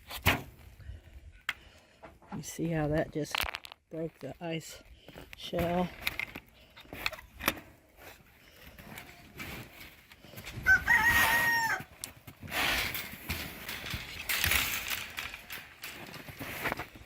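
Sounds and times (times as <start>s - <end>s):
rooster crowing: 10.6s - 11.9s.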